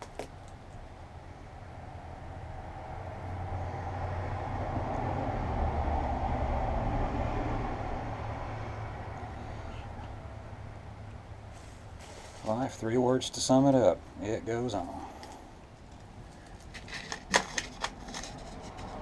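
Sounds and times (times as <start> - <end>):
vehicle driving past: 1.4 - 12.6.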